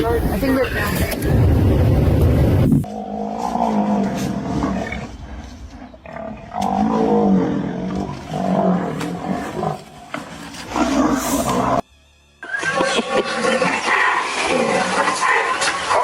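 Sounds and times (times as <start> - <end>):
animal growling roars: 2.8 - 11.8.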